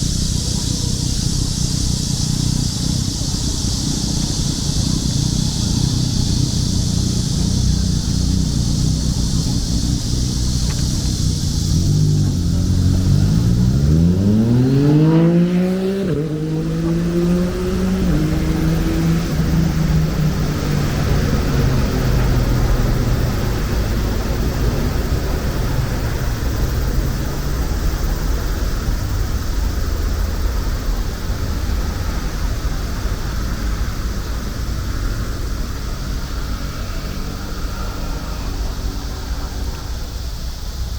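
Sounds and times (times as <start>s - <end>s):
road traffic rumble: 0.0s - 40.9s
vehicle engine accelerating: 0.0s - 40.9s.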